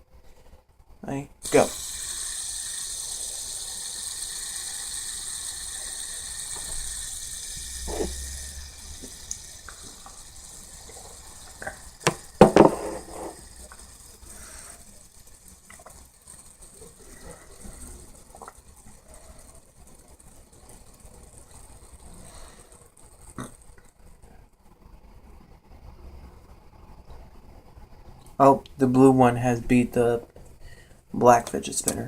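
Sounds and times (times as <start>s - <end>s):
fidget spinners whirring: 1.4s - 28.4s
sharp knocks and clatter: 12.0s - 13.4s.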